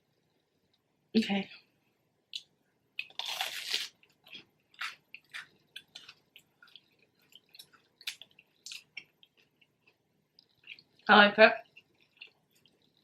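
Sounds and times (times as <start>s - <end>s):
person biting food: 3.0s - 4.0s
wet chewing with smacks: 11.7s - 13.0s.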